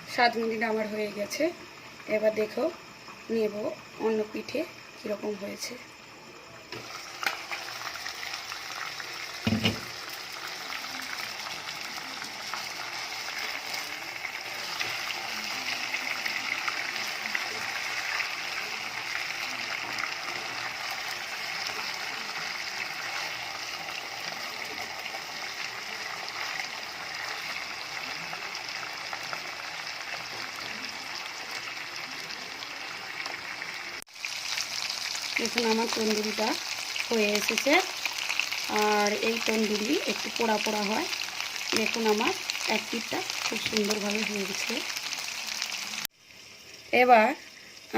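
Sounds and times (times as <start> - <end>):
chicken sizzling in hot oil: 0.0 - 47.9
thump: 9.5 - 9.9.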